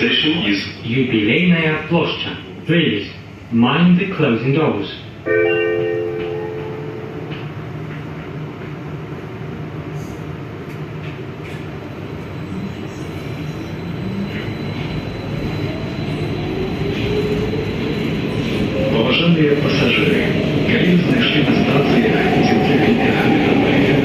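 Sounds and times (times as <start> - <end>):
train rumbling in a tunnel: 0.0 - 24.0.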